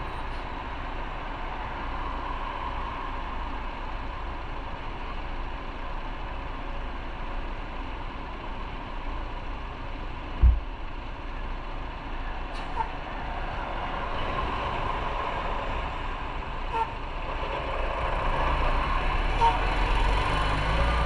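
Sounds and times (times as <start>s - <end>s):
road and traffic noise hiss: 0.0s - 21.0s
sharp low thump: 10.4s - 10.7s.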